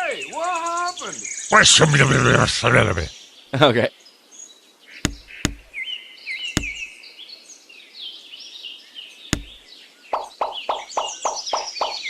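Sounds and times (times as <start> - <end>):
small birds chirping: 0.0 - 12.0
sharp knocks: 5.0 - 5.7, 6.6 - 6.8, 9.4 - 9.6.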